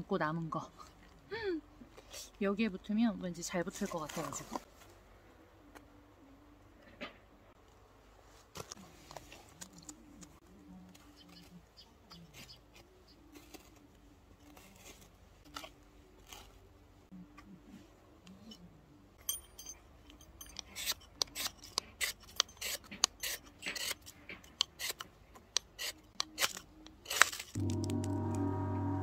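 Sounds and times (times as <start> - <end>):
ferro rod scraped with metal striker: 20.4 - 28.5.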